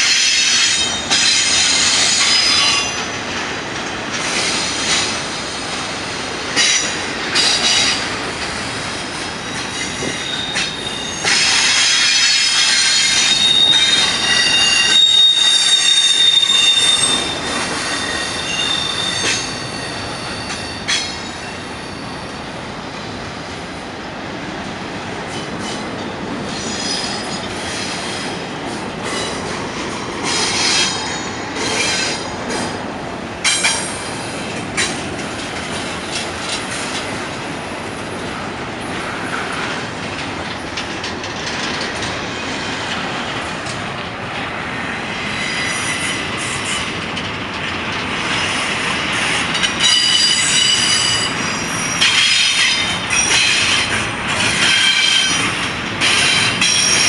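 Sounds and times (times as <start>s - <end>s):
steel wheels rumbling on rail: 0.0s - 57.0s
high-pitched wheel squeal: 9.8s - 22.3s, 49.8s - 53.9s.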